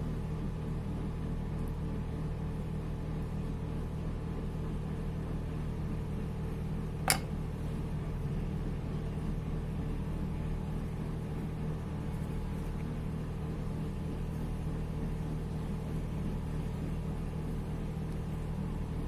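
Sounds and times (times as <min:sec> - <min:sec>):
low mechanical hum with tones: 0:00.0 - 0:19.0
sharp click: 0:07.1 - 0:07.3.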